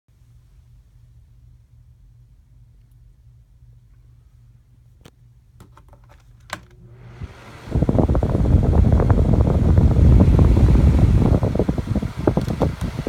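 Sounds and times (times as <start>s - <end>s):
box fan rush of air: 6.8s - 13.0s
fan switch clicks: 11.6s - 13.0s.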